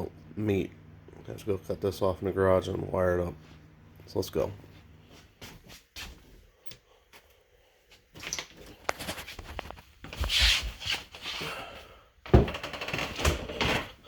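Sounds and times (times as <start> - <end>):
rustling and clicking handling noises: 8.2 - 11.2.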